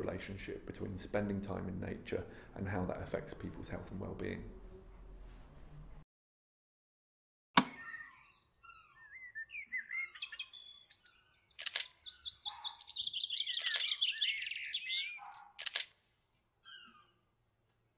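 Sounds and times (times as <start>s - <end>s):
bird chirping and trilling: 7.7s - 15.6s, 16.6s - 17.3s
sharp clicks: 11.6s - 12.0s, 13.5s - 14.0s, 15.6s - 16.0s.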